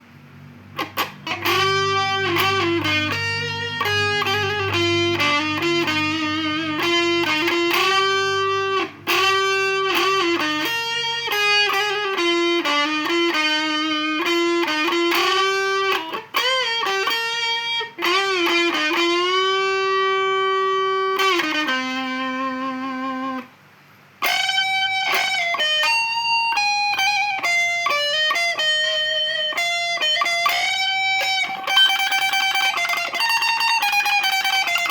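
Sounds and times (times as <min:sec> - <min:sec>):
guitar slow melody: 0:00.4 - 0:34.9
low sustained guitar note: 0:01.2 - 0:23.4.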